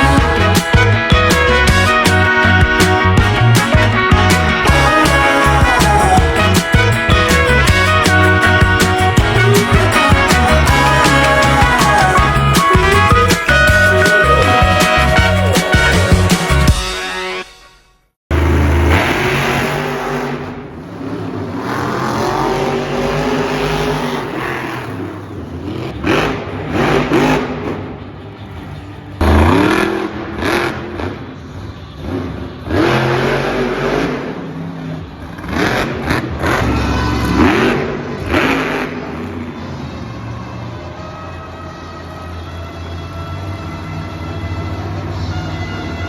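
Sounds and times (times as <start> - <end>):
monster truck engines revving: 0.0 - 17.2, 18.3 - 46.0.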